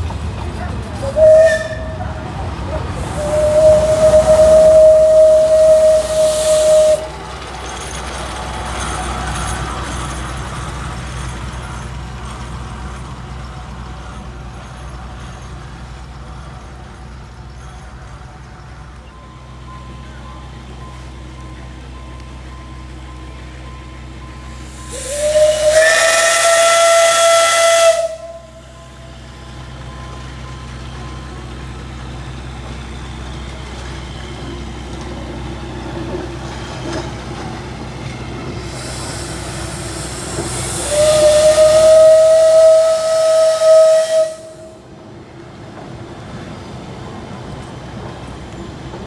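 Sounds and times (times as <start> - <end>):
steam hissing: 0.8 - 18.8, 24.0 - 45.2
steam whistle blasts: 1.0 - 2.1, 2.9 - 7.3, 24.5 - 29.1, 38.6 - 44.9.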